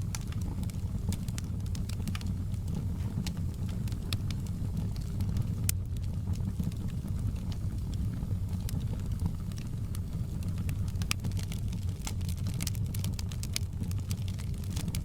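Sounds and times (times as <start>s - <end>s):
fire crackles and pops: 0.0s - 15.0s
fire rumbling in a fireplace: 0.0s - 15.0s.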